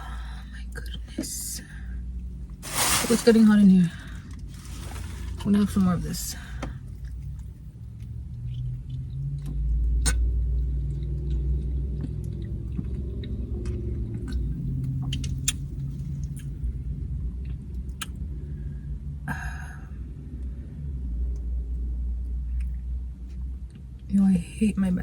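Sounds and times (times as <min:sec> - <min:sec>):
low rumble: 0:02.1 - 0:24.1
crunching chips: 0:02.6 - 0:05.8
chewing clicks: 0:07.0 - 0:16.6.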